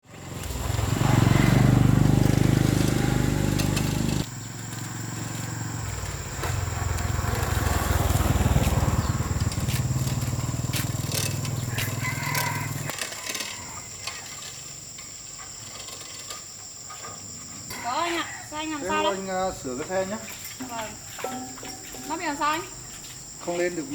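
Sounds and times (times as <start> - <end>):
small motorcycle engine running: 0.0 - 16.5.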